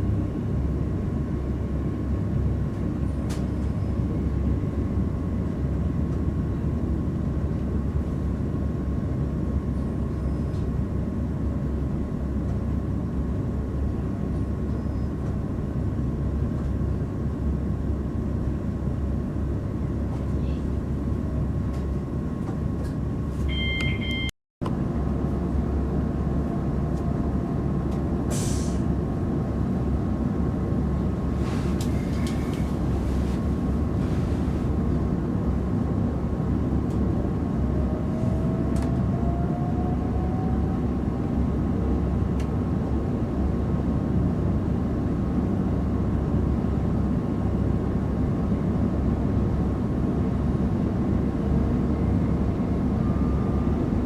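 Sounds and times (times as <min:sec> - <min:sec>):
train wheels rumbling on track: 0:24.6 - 0:46.8.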